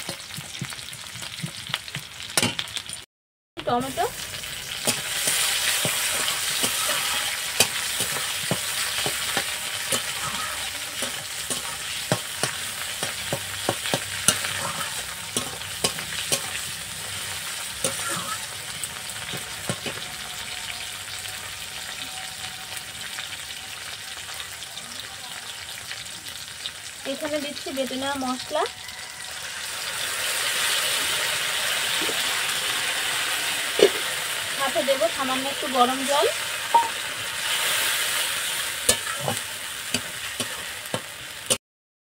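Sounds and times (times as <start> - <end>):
vegetables sizzling in oil: 0.0 - 3.0, 3.6 - 41.6
metal spatula scraping pan: 4.7 - 20.5, 35.7 - 41.6.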